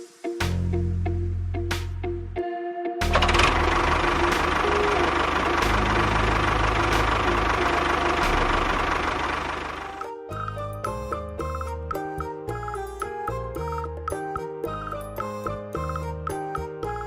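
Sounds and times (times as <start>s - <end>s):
engine running with rattly rumble: 3.0s - 10.0s.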